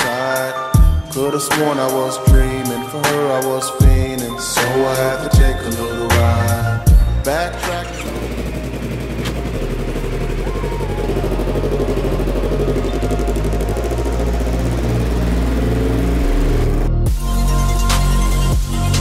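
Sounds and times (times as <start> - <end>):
motorcycle engine running: 3.8 - 17.2.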